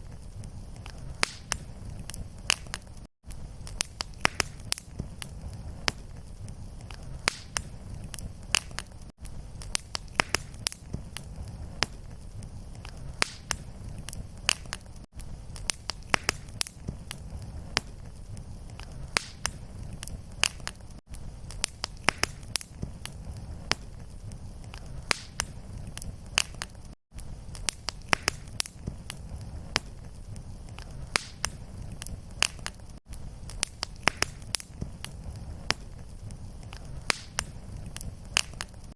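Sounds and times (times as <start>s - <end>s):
fireplace fire crackling: 0.0s - 38.9s.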